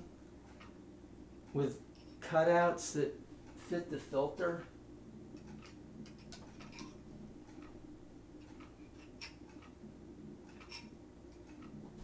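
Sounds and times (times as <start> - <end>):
steady low hum: 0.0 - 12.0
metal tools clicking: 5.4 - 7.0, 10.5 - 11.7.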